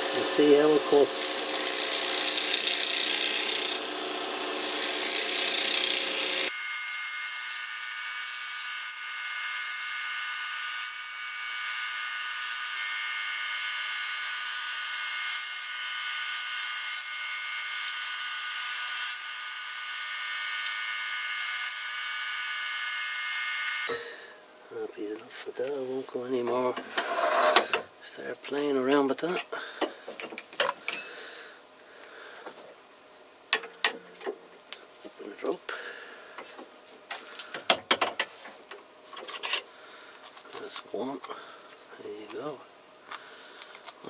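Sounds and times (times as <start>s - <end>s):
chisel cutting spinning wood: 0.0s - 6.6s
wood lathe whining: 0.0s - 24.0s.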